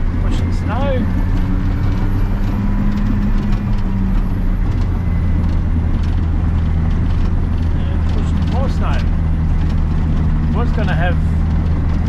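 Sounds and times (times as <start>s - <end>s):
bulldozer diesel engine droning: 0.0s - 12.0s.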